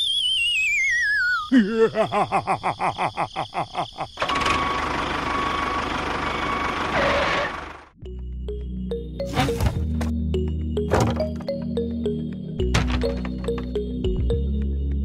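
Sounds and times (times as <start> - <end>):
engine running with thin whine: 4.2 - 7.9.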